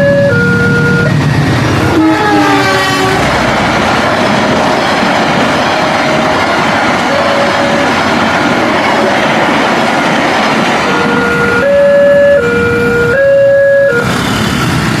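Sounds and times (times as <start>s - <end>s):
two-note train horn: 0.0s - 1.2s, 1.8s - 3.4s, 7.1s - 8.0s, 10.8s - 14.1s
train rumbling past: 0.0s - 15.0s.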